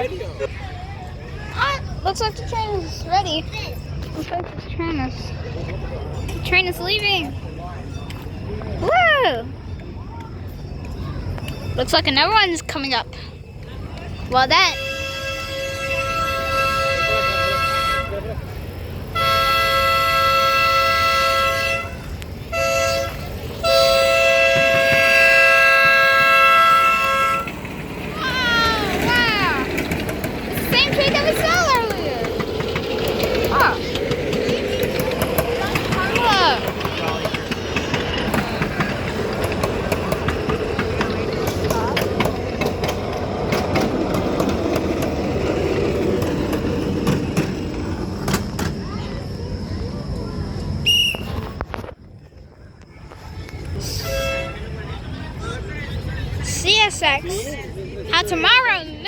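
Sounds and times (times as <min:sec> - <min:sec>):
miniature train engine running: 0:00.0 - 0:51.8
train horn blasts: 0:14.5 - 0:18.5, 0:19.1 - 0:27.7, 0:53.9 - 0:54.8.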